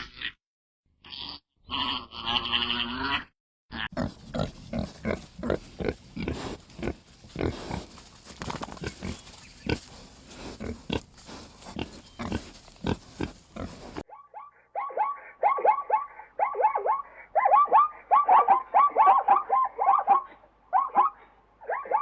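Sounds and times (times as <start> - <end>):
pig grunting: 1.1 - 14.0.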